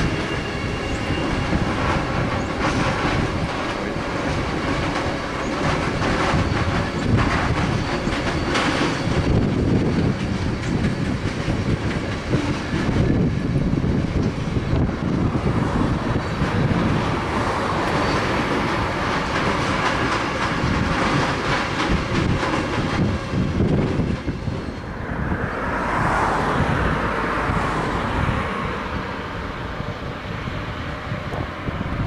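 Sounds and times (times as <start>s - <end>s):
freight train wheels clicking: 0.0s - 25.0s.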